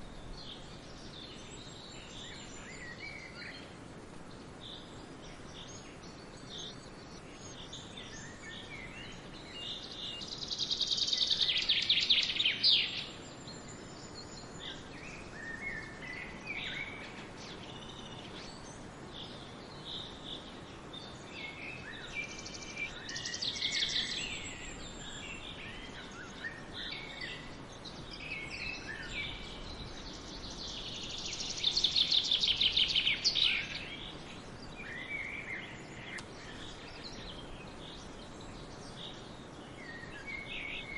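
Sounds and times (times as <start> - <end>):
background hiss: 0.0 - 40.9
birds chirping and whistling: 21.0 - 40.9.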